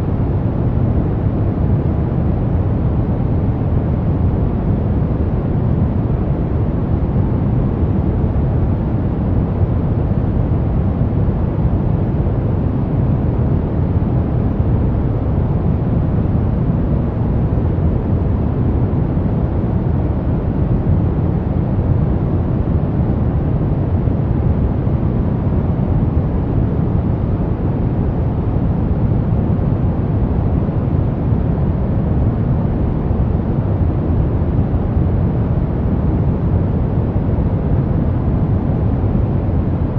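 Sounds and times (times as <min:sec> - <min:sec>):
deep rumbling brown noise: 0:00.0 - 0:39.9.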